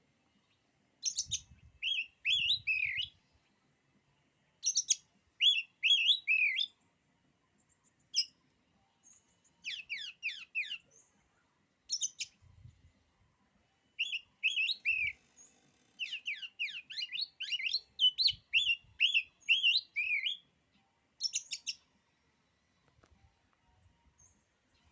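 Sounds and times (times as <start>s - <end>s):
bird singing whistled notes: 0.4s - 3.4s, 4.6s - 6.8s, 7.6s - 8.4s, 9.0s - 11.1s, 11.9s - 12.4s, 14.0s - 21.9s.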